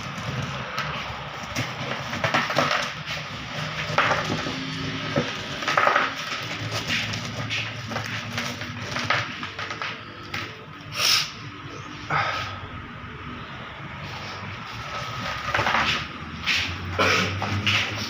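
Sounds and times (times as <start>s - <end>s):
hard objects knocking and clattering: 0.0s - 10.8s, 14.7s - 18.0s.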